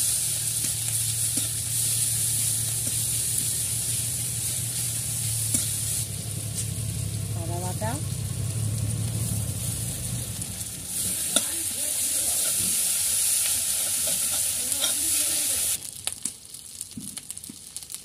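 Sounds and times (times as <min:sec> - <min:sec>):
onions sizzling in hot oil: 0:00.0 - 0:16.2
metal spatula scraping pan: 0:13.7 - 0:15.3.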